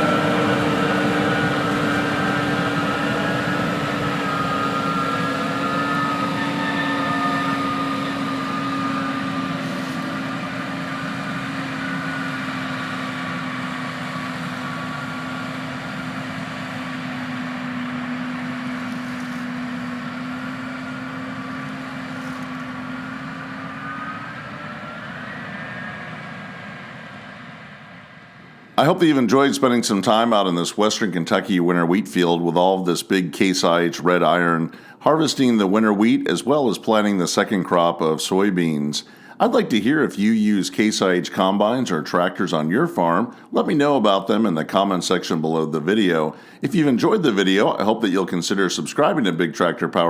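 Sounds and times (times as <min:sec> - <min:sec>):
high whine: 0:00.0 - 0:31.5
diesel farm machinery drone: 0:00.0 - 0:50.0.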